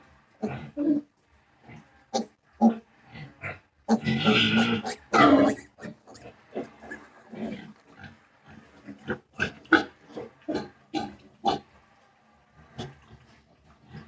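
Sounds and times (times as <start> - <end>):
piglets calling: 3.9 - 7.1.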